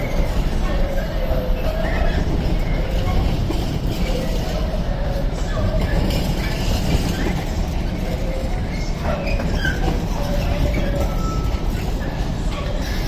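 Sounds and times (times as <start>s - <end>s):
train wheels rumbling on rails: 0.0s - 13.0s
thin wheel squeals: 8.2s - 12.9s.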